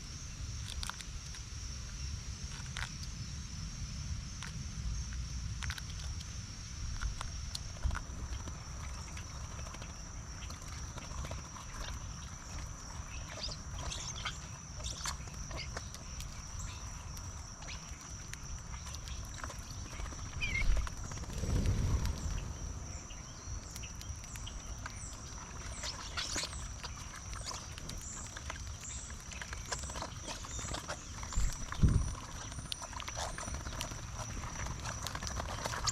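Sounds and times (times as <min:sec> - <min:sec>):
bird chirps and clicks: 0:06.9 - 0:22.5, 0:23.1 - 0:35.9
low rumble: 0:20.4 - 0:24.7.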